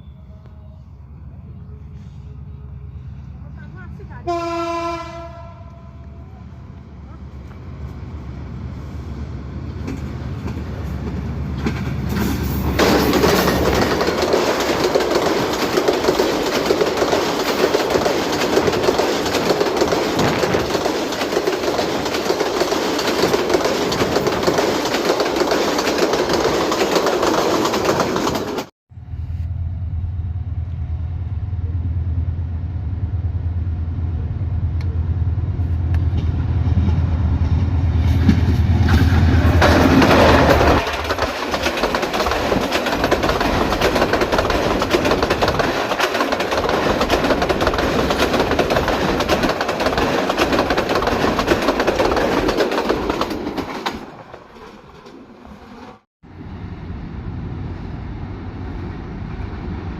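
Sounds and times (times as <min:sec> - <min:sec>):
diesel locomotive engine drone: 0:00.0 - 0:59.9
train wheels clattering on rail: 0:09.7 - 0:28.7, 0:35.9 - 0:56.0.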